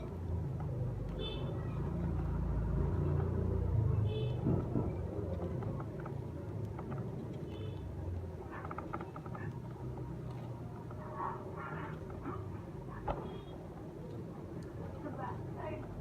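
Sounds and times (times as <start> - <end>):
faint clicks: 4.6 - 16.0.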